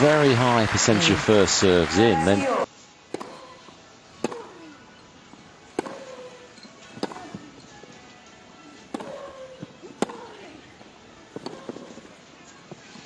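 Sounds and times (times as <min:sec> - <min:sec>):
racquet striking tennis ball: 0:03.1 - 0:03.6, 0:04.2 - 0:04.7, 0:05.7 - 0:07.6, 0:08.8 - 0:10.5, 0:11.3 - 0:12.1.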